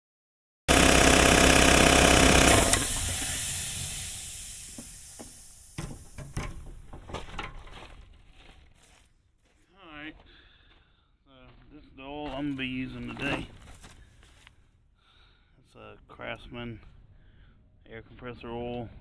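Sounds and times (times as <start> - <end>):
air compressor pump running: 0.7 - 7.3
clicks and knocks: 1.2 - 7.8.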